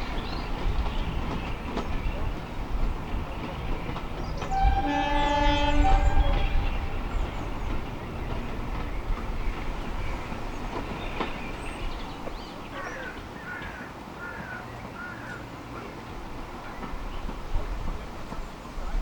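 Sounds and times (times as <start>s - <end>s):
bird chirping: 0.0s - 13.1s
train rumbling past: 0.0s - 19.0s.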